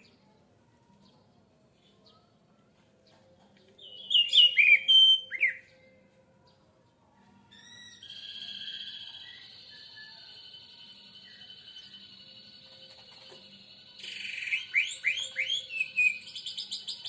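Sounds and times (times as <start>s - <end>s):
bird singing whistled notes: 3.8s - 6.0s, 7.5s - 17.0s.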